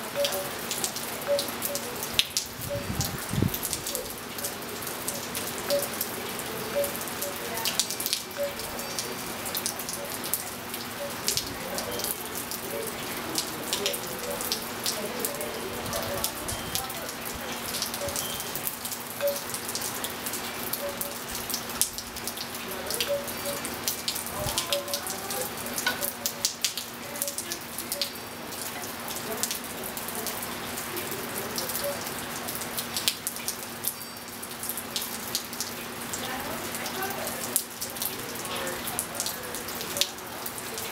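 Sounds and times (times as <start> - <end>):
rain on pool and tiles: 0.0 - 40.9
faint wind chime: 34.0 - 34.3.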